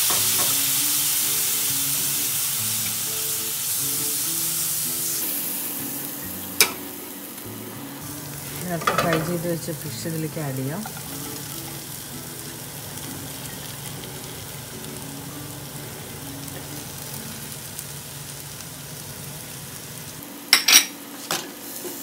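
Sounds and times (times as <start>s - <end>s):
fish frying in oil: 0.0s - 5.2s, 8.4s - 20.2s.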